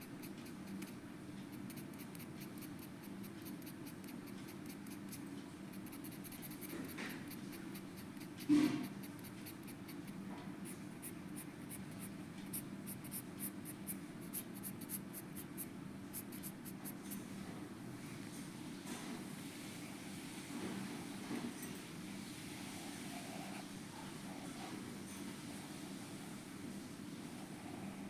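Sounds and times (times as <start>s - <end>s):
drawing tool scratching paper: 0.0s - 17.0s
steady low hum: 0.0s - 18.3s.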